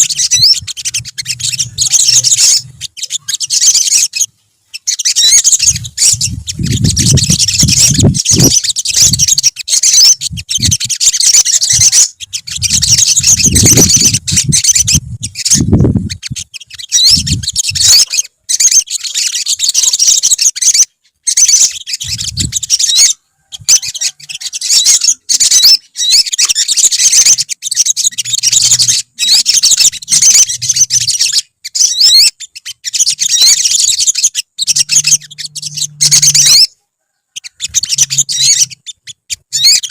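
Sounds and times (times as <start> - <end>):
sunbirds chirping and twittering: 0.0 - 39.9
low rumbles: 34.7 - 36.6.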